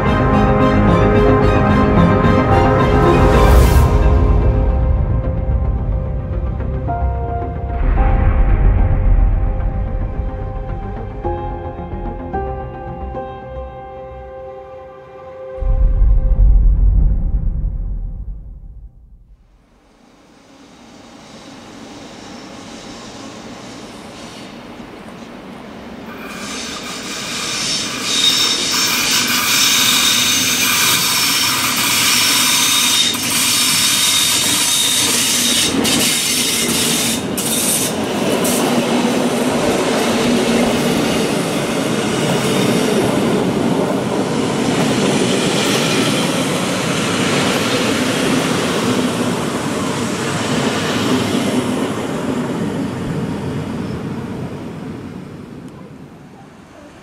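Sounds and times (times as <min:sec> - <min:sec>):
train coaches rolling past: 0:20.2 - 0:57.0
train wheel squeal: 0:20.6 - 0:25.2, 0:26.1 - 0:39.1.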